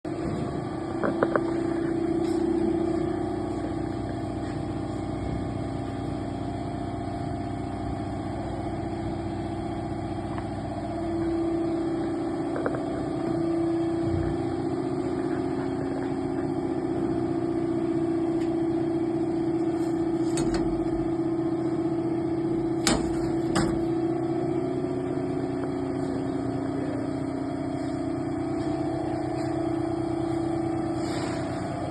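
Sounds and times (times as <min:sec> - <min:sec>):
machine humming drone: 0:00.1 - 0:31.9
sharp clicks and knocks: 0:20.3 - 0:20.9, 0:22.8 - 0:23.8.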